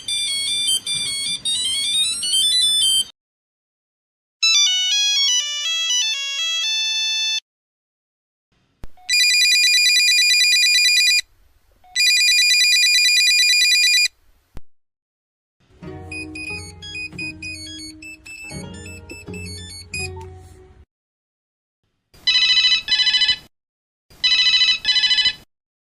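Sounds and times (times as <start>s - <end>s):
beeping phone ringtone melody: 0.0s - 3.1s, 4.4s - 7.4s, 9.0s - 11.2s, 12.0s - 14.1s, 16.0s - 20.3s, 24.2s - 25.4s
musical ringtone: 0.0s - 3.1s, 4.4s - 7.4s, 15.8s - 20.8s
trilling electronic phone rings: 0.0s - 3.1s, 4.4s - 7.4s, 9.0s - 11.2s, 12.0s - 14.1s, 16.1s - 20.2s, 22.3s - 23.4s, 24.2s - 25.5s.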